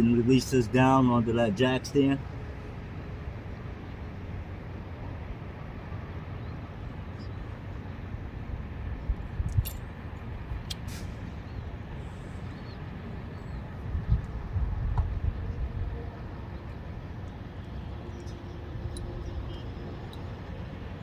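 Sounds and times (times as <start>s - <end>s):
steady low rumble: 2.2s - 21.0s.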